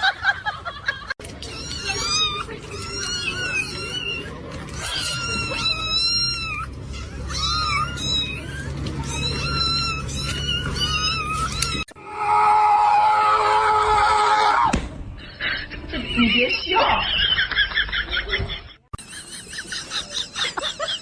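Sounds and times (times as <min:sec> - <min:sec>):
cat meowing: 0:01.4 - 0:11.9.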